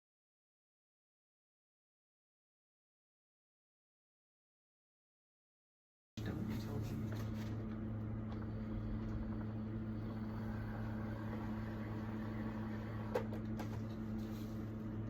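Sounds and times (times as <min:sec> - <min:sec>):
electric motor humming: 0:07.6 - 0:14.2.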